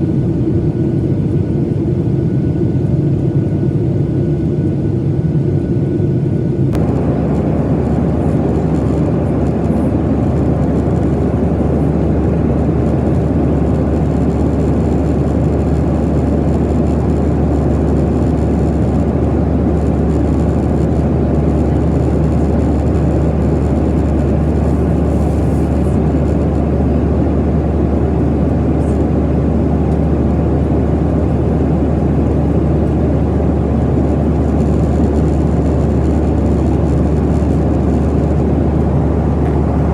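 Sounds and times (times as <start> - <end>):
jet engine drone: 0.0 - 39.9
air rushing over fuselage: 6.8 - 18.1, 35.9 - 39.9.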